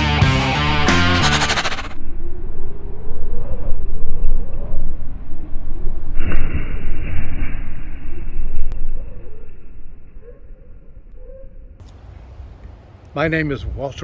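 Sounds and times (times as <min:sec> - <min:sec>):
music: 0:00.0 - 0:01.9
bright rushing noise: 0:01.0 - 0:02.0.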